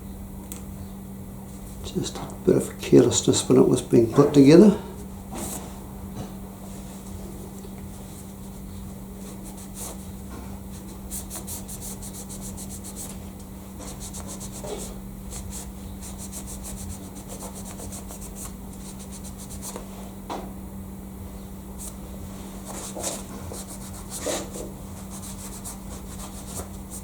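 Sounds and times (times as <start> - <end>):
rubbing on metal: 22.6 - 27.0.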